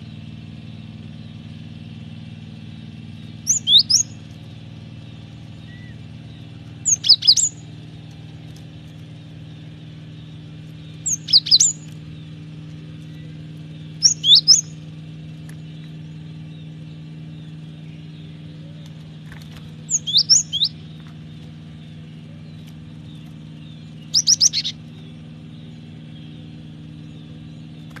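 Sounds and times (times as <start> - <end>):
bird calling: 0.0 - 28.0
steady low hum: 0.0 - 28.0.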